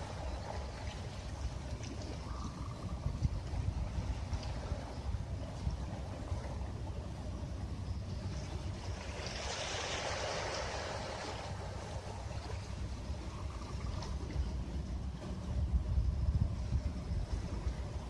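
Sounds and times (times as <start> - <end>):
low rumble of surf: 0.0 - 18.0
wave breaking and washing up: 8.6 - 14.5.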